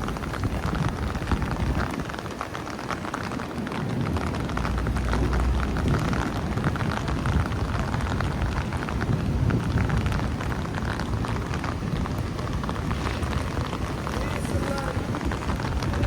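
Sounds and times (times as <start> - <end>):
heavy rain pattering on hard surfaces: 0.0 - 16.0
low rumble: 4.0 - 16.0.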